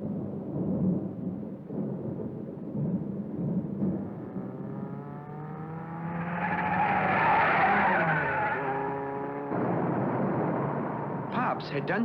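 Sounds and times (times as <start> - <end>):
cartoon race car engine: 4.7 - 10.0.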